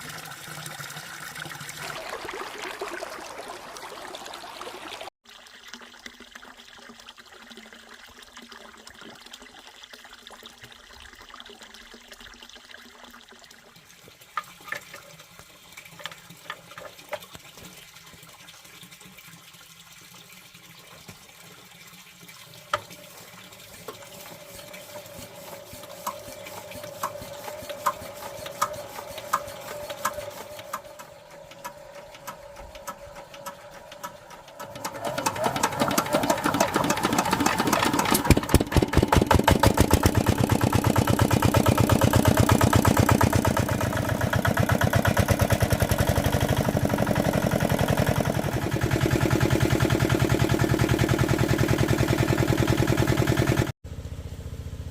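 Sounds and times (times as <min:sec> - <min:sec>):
water running and trickling: 0:00.0 - 0:34.8.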